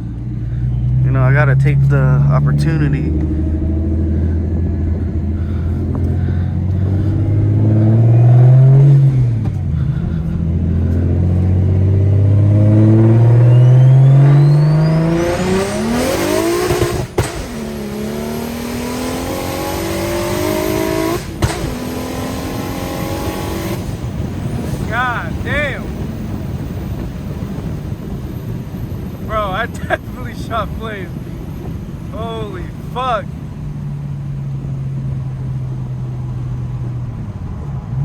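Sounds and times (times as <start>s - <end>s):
car engine at full throttle: 0.0s - 38.0s
exhaust cracks: 0.0s - 38.0s
turbo whistle: 13.4s - 15.4s.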